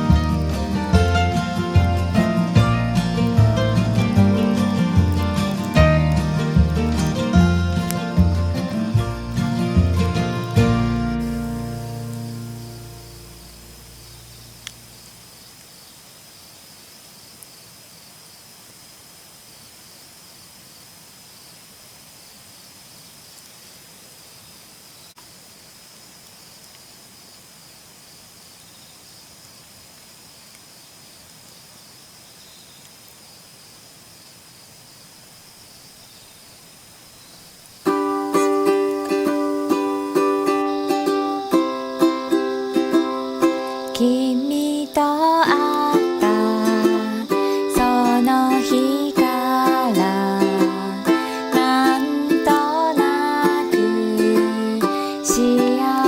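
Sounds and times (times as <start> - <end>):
ukulele plucked notes: 0.0 - 13.8, 37.9 - 56.0
faint outdoor ambience: 0.0 - 56.0.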